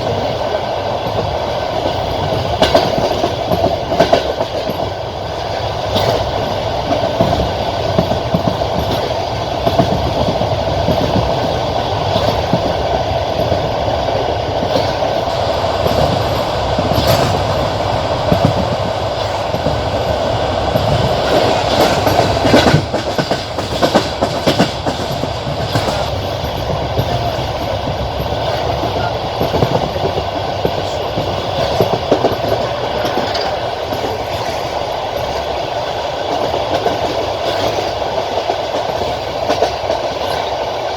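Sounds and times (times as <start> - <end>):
train rolling rumble: 0.0 - 40.9
train wheels clattering over joints: 0.0 - 40.9.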